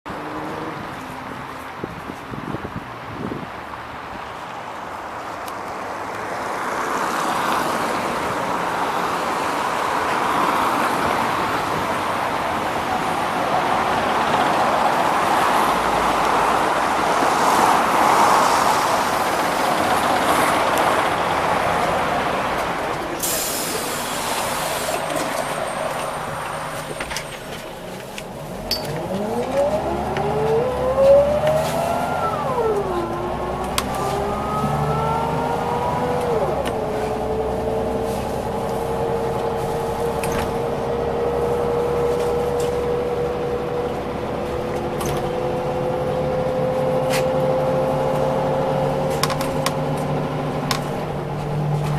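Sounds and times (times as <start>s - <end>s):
bus running with road noise: 0.1s - 51.9s
bus engine whine rising: 11.8s - 51.9s
air hiss: 23.2s - 25.3s.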